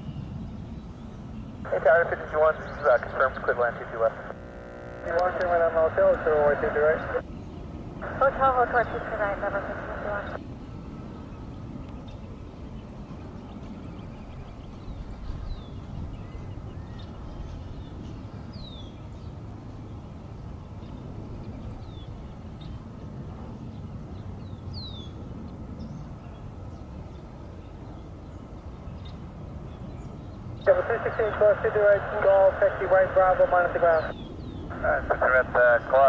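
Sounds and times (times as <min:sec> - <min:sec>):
bird chirping: 0:02.4 - 0:04.4.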